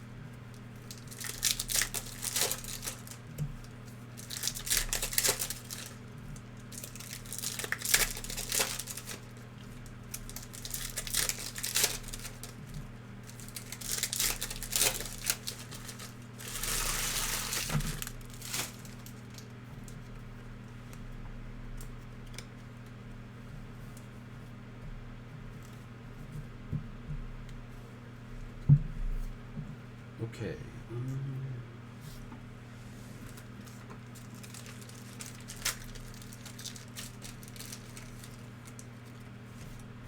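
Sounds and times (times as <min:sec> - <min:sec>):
low electrical hum: 0:00.0 - 0:40.0
foil wrappers crinkling and tearing: 0:00.6 - 0:20.1, 0:33.2 - 0:39.8.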